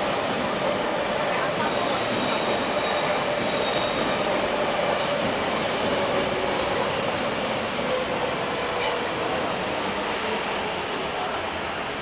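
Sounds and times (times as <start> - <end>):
train wheels clicking: 0.0 - 9.2
train rumbling: 0.0 - 12.0.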